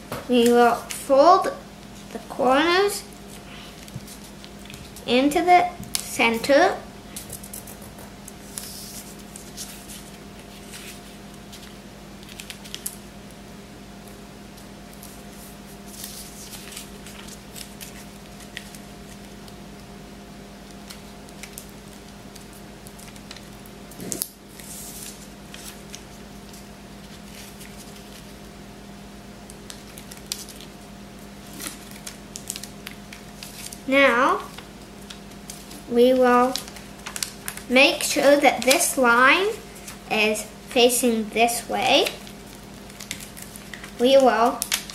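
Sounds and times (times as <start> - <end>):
steady low hum: 0.0 - 44.9
paper rustling and crinkling: 3.2 - 5.1, 7.1 - 13.0, 14.9 - 19.5, 20.8 - 28.4, 29.6 - 30.8, 31.4 - 40.1, 41.8 - 44.9.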